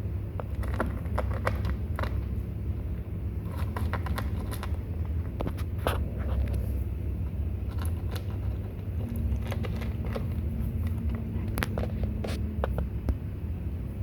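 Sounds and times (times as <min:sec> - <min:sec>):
faint steady hum: 0:00.0 - 0:14.0
low engine rumble: 0:00.0 - 0:14.0
kittens crunching food: 0:00.3 - 0:13.2.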